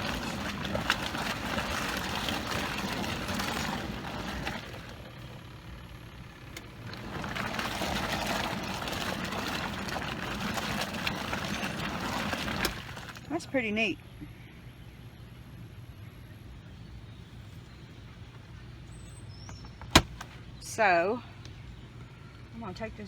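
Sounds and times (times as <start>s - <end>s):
washing machine motor humming: 0.0s - 14.0s.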